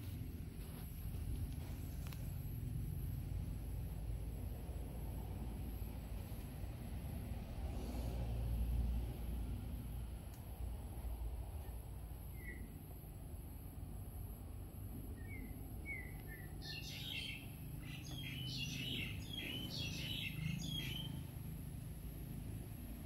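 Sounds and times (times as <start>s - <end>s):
low background rumble: 0.0s - 23.0s
small birds chirping: 12.2s - 12.8s, 15.1s - 21.5s.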